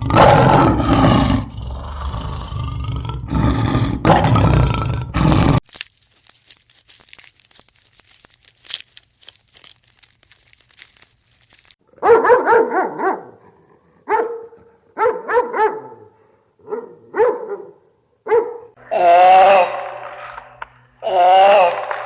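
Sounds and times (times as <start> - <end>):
faint crackling: 5.6 - 11.8
dog barking: 11.9 - 18.8.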